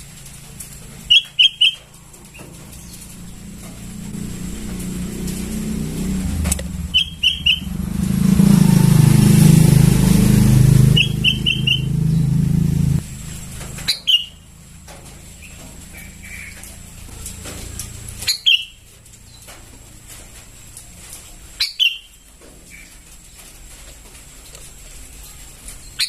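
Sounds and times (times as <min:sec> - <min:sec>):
passing vehicle rumble: 0:00.0 - 0:21.1
bird chirping calls: 0:01.1 - 0:04.1, 0:05.6 - 0:13.0, 0:13.7 - 0:14.5, 0:18.2 - 0:19.5, 0:21.6 - 0:23.0.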